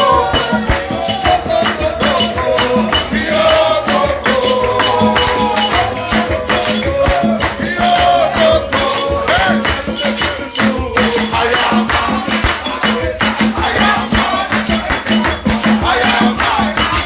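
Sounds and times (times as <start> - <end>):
bending melody line: 0.0 - 12.8
rattling percussive beat: 0.0 - 17.0.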